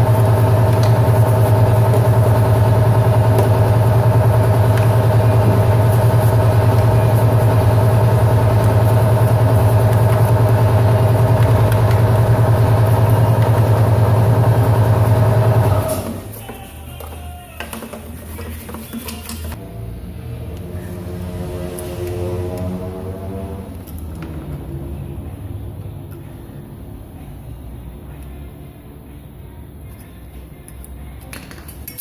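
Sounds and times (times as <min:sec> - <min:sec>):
motor humming: 0:00.0 - 0:16.2.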